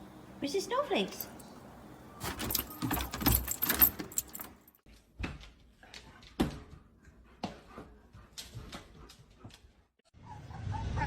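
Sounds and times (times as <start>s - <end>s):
jingling and rattling: 2.2s - 4.8s.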